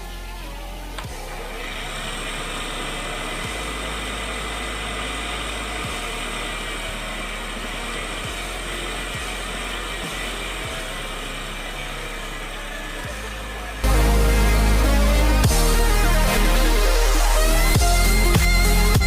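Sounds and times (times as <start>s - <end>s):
mist machine running: 0.0s - 19.0s.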